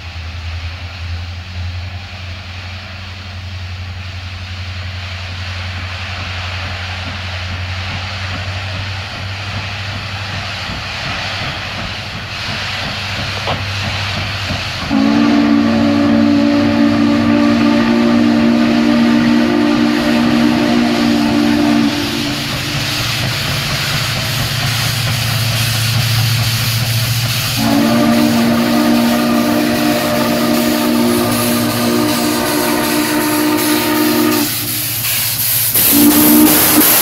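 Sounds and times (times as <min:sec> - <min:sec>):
low locomotive rumble: 0:00.0 - 0:37.0
steam hiss: 0:00.0 - 0:37.0
steam locomotive chime whistle: 0:14.9 - 0:23.2, 0:27.6 - 0:35.1, 0:35.7 - 0:37.0.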